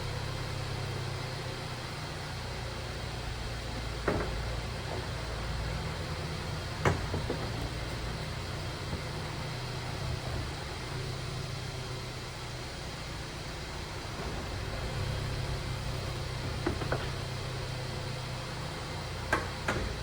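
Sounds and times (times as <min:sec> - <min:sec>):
car engine low hum: 0:00.0 - 0:20.0
sharp clunks: 0:03.8 - 0:05.3, 0:06.7 - 0:08.2.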